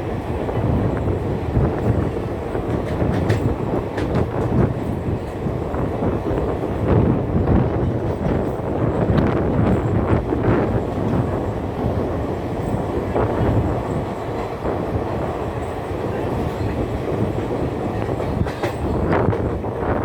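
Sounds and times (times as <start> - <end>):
train wheels rumbling on rails: 0.0 - 20.0
sharp rail clacks: 1.8 - 5.5, 15.5 - 19.6.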